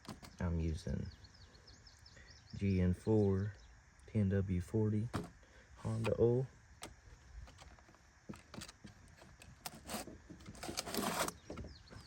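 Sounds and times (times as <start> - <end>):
rustling scrape: 8.5 - 11.6.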